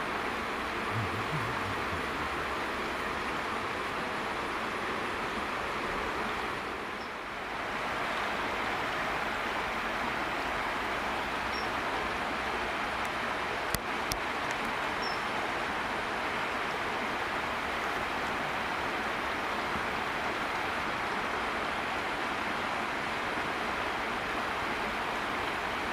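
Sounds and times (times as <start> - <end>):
river flowing: 0.0 - 25.9.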